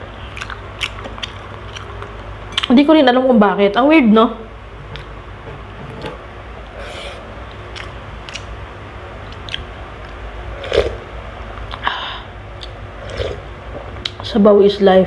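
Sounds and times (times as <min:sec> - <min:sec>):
close-miked chewing: 0:00.2 - 0:02.7, 0:07.4 - 0:08.5, 0:09.3 - 0:10.2
wet mouth clicks: 0:00.3 - 0:02.7, 0:07.7 - 0:08.5, 0:09.3 - 0:10.9.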